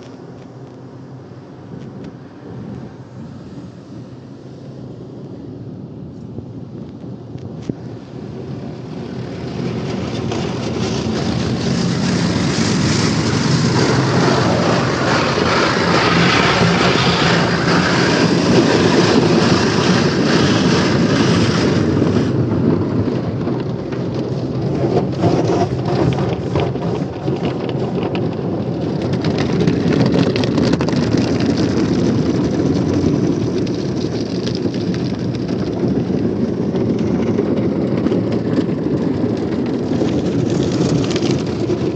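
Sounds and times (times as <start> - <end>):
water spraying onto car: 7.8 - 37.8.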